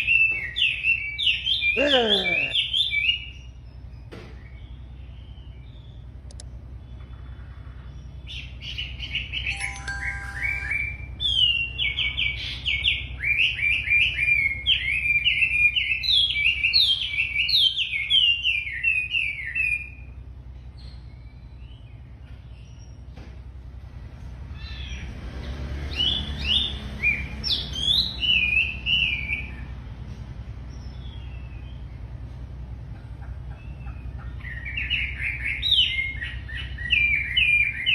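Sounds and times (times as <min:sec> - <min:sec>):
steady low hum: 0:01.6 - 0:24.6
songbird whistling: 0:08.3 - 0:20.1.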